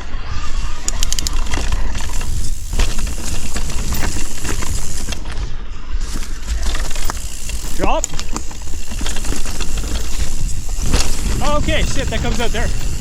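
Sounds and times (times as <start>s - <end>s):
bike tyre noise: 0.0s - 13.0s
bike knocking and rattling: 0.8s - 13.0s
wind rumble on microphone: 8.6s - 13.0s.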